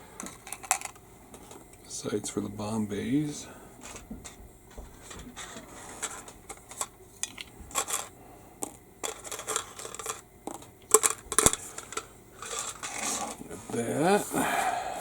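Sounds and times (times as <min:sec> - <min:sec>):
plastic parts clicking and tapping: 0:00.2 - 0:01.6, 0:03.8 - 0:13.4.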